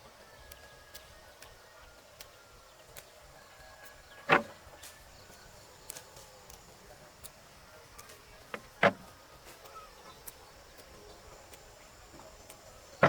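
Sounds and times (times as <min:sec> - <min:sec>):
faint light clicks: 0:00.4 - 0:03.2.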